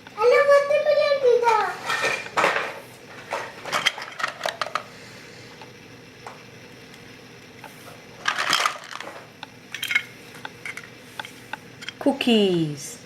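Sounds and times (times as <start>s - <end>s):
small hard items clattering: 8.2s - 9.2s.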